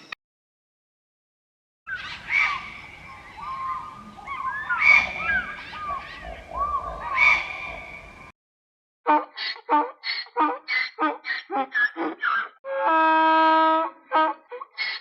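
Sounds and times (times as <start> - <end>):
birds calling: 1.9 - 8.3.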